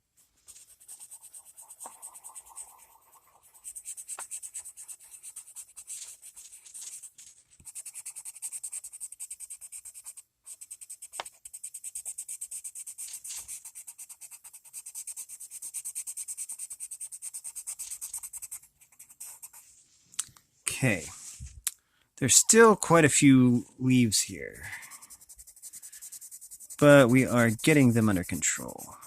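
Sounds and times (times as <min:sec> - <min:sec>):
coloured pencil shading on paper: 0:00.2 - 0:19.8, 0:24.0 - 0:29.0.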